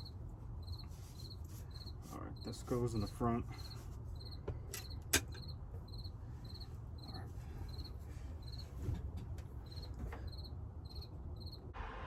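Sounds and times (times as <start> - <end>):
cricket chirping: 0.0 - 2.6, 3.6 - 8.6, 9.6 - 11.6.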